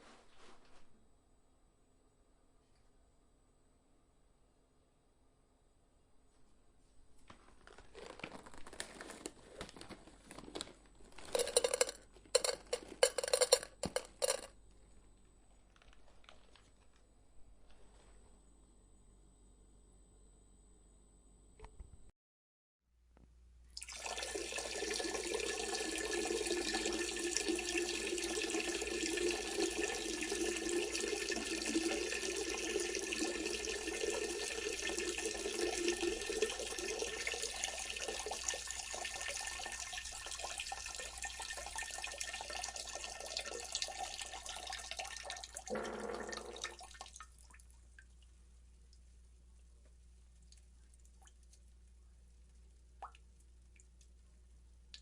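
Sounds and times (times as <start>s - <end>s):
running water: 23.8s - 48.4s.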